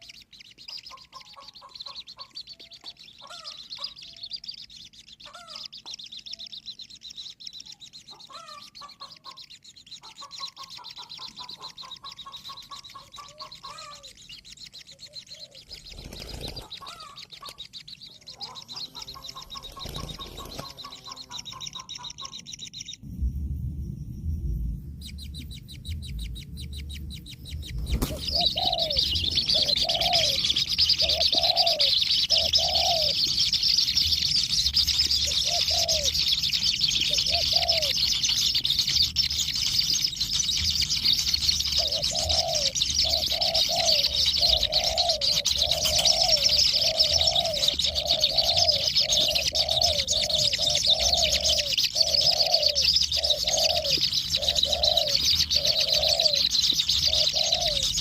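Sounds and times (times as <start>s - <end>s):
low hooting bird calls: 0.0s - 58.0s
steady high-pitched hiss: 22.8s - 58.0s.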